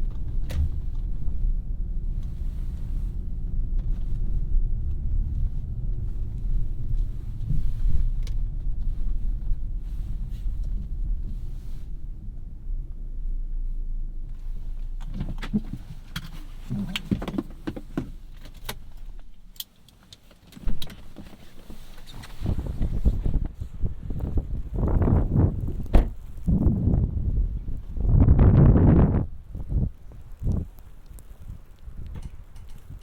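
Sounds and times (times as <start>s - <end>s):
car engine and road rumble: 0.0s - 33.0s
clicks and rattles: 32.0s - 33.0s.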